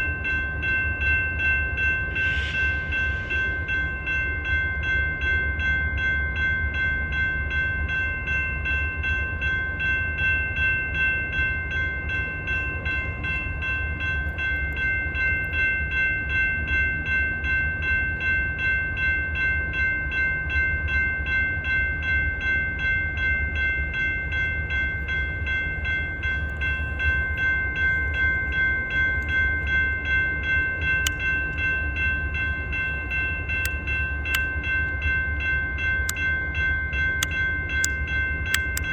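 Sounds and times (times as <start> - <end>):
crossing bell ringing: 0.0 - 38.9
train rumbling: 0.0 - 38.9.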